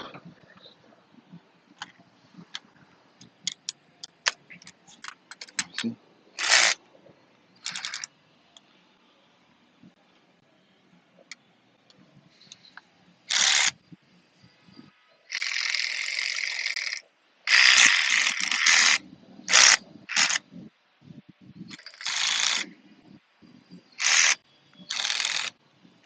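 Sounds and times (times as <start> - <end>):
ratchet wrench clicking: 21.8 - 22.6, 24.0 - 25.5.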